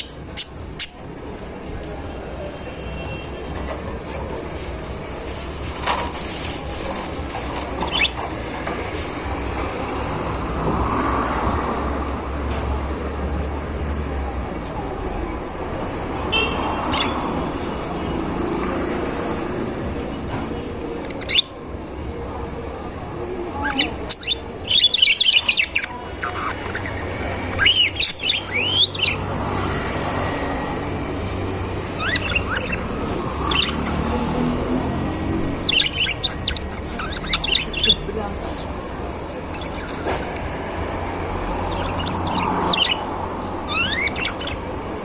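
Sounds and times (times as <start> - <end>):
budgerigars chirping and warbling: 0.0 - 1.4, 5.3 - 10.3, 16.2 - 19.8, 21.0 - 21.6, 23.6 - 45.0.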